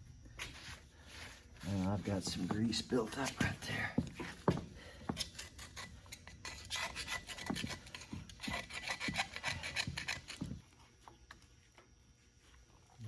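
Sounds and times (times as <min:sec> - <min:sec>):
rasping scraping on metal: 0:05.0 - 0:10.6.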